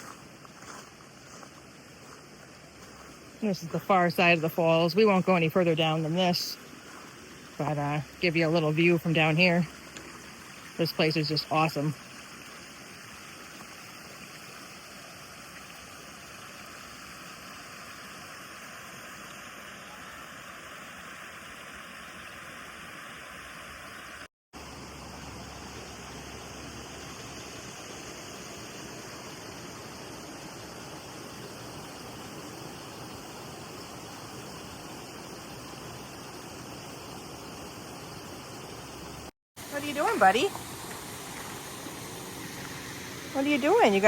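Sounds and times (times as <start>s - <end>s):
waterfall rushing: 39.6s - 44.0s.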